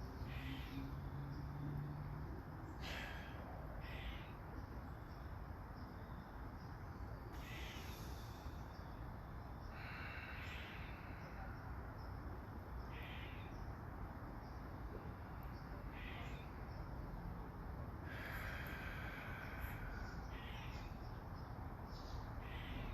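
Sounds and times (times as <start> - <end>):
crow cawing: 3.8 - 4.3, 12.9 - 13.5, 16.0 - 16.4, 18.1 - 20.9, 22.4 - 22.9.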